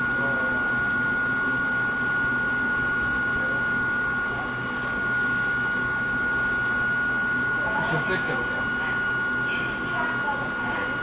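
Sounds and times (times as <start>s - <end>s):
high constant whine: 0.0s - 11.0s.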